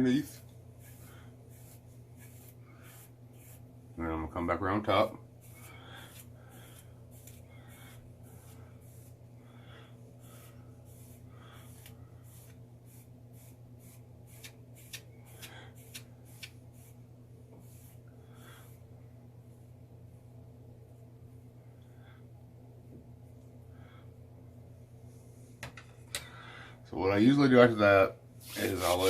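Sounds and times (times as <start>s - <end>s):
comb scratching through beard: 0.0s - 9.3s, 10.2s - 17.0s, 28.4s - 29.0s.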